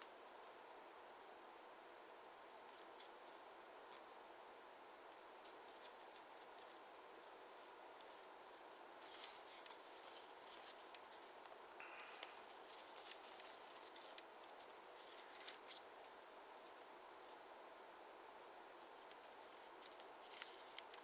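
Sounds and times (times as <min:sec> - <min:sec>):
low hiss: 0:00.0 - 0:21.0
paper crackling and rustling: 0:05.4 - 0:11.5, 0:12.1 - 0:17.4, 0:19.0 - 0:21.0.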